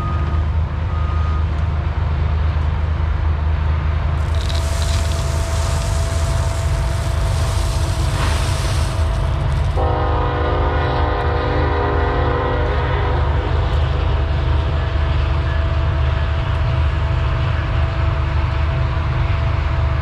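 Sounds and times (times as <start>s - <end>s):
low rumble: 4.2s - 10.3s.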